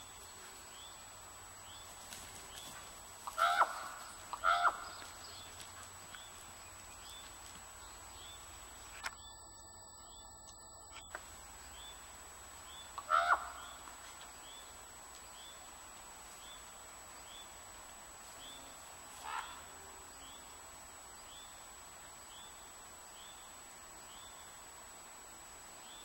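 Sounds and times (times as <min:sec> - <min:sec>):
bird chirping: 0:00.0 - 0:15.8
outdoor ambience: 0:00.0 - 0:26.0
loud animal calls: 0:03.2 - 0:05.5, 0:12.9 - 0:13.9, 0:19.2 - 0:19.8.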